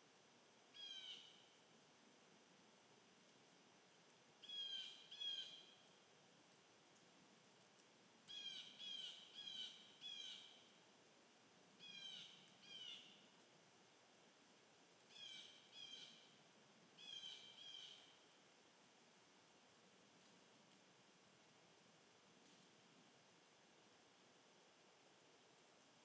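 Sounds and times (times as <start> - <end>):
background hiss: 0.0 - 26.0
bird calling: 15.1 - 16.3, 17.0 - 18.1.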